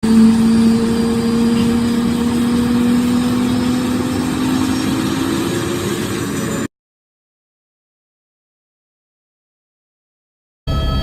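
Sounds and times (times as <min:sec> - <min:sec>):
helicopter engine and rotor: 0:00.0 - 0:06.7
steady hum: 0:00.0 - 0:06.7.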